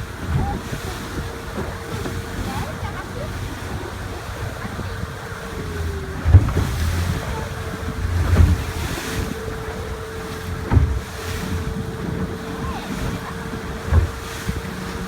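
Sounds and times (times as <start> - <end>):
water noise: 0.0 - 15.0
wind buffeting microphone: 0.0 - 15.0
low thumps: 4.6 - 14.7.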